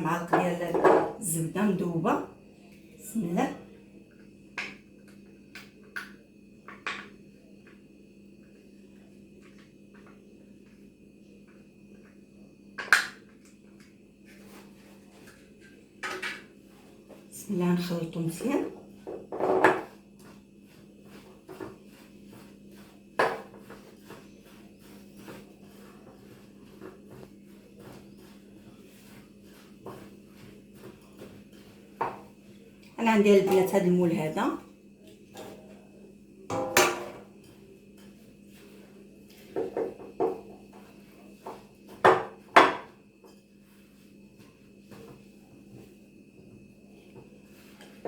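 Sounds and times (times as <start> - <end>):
utensil scraping in a bowl: 18.6 - 32.4.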